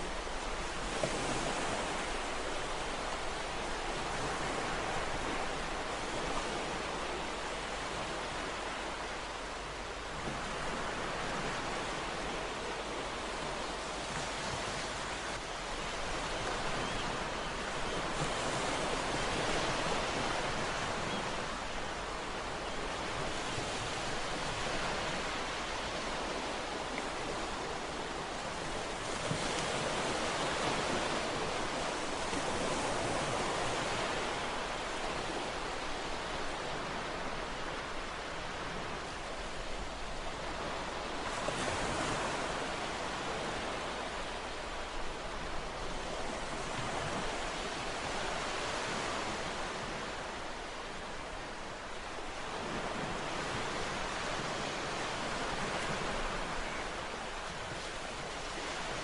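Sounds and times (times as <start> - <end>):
ocean waves washing on shore: 0.0 - 59.0.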